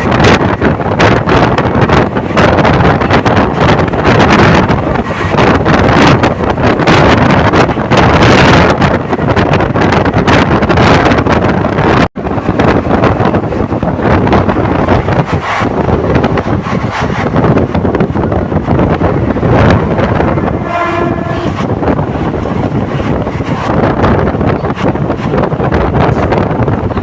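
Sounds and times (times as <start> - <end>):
passenger train running: 0.0 - 27.0
train horn blast: 20.4 - 21.7.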